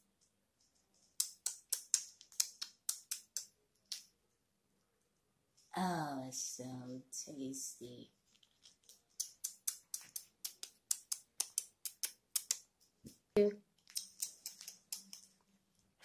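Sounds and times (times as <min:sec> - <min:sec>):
crackers crunching: 0:08.2 - 0:12.6, 0:13.7 - 0:16.0.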